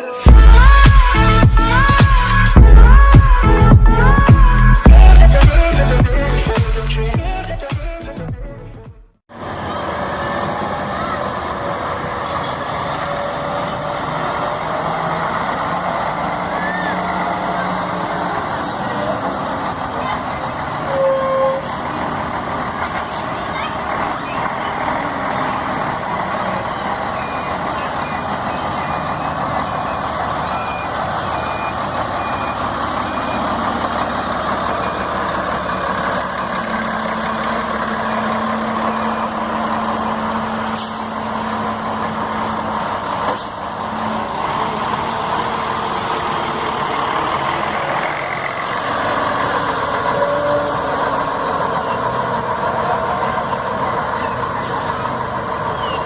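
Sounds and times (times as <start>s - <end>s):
diesel engine running: 0.0s - 56.0s
reversing alarm beeping: 26.8s - 34.0s.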